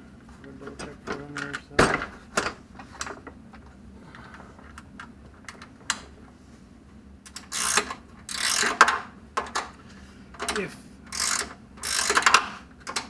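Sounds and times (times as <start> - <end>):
rapid ratcheting: 7.3 - 9.0, 11.1 - 13.0.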